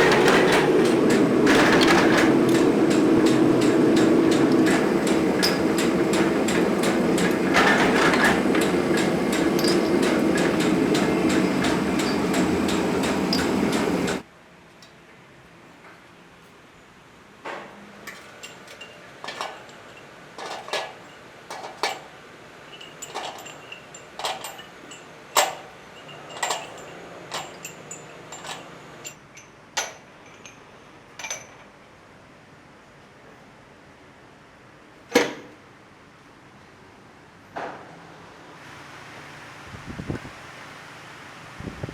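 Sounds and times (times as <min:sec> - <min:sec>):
metalworking machinery hum: 0:00.0 - 0:14.3, 0:17.8 - 0:31.8.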